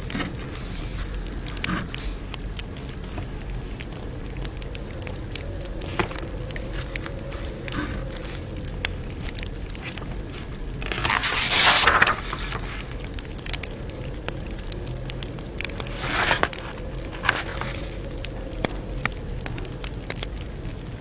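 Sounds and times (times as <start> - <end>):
campfire crackling and popping: 0.0 - 21.0
rustling swishes: 5.2 - 13.0, 15.8 - 18.3.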